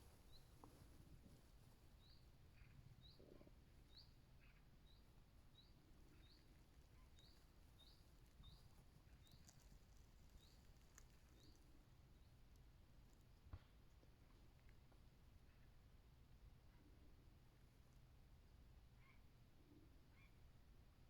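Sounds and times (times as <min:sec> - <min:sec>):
bird chirping faintly: 0:00.0 - 0:12.4.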